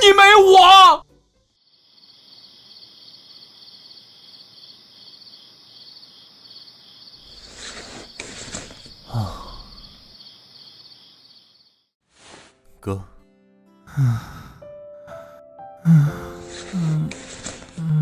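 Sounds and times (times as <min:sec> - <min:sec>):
crickets chirping: 0:01.4 - 0:11.9
short rustling noises: 0:07.3 - 0:09.0.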